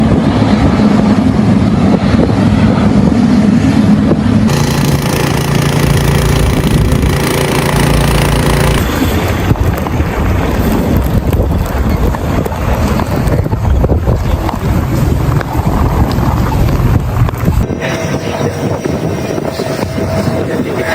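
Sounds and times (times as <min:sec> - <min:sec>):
low engine hum: 0:00.0 - 0:20.9
vehicles running in snowstorm: 0:00.0 - 0:20.9.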